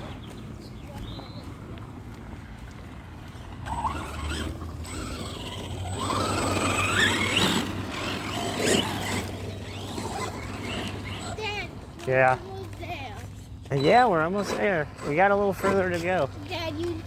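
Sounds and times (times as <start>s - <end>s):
toy truck motor whining: 3.6s - 12.4s, 13.7s - 17.0s.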